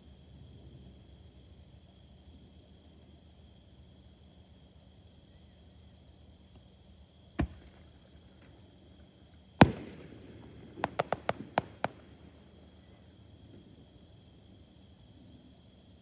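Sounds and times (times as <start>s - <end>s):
insects chirping: 0.0s - 16.0s
fireworks bangs: 7.4s - 8.6s, 9.6s - 12.8s
sharp firework cracks: 7.4s - 8.6s, 9.6s - 12.7s.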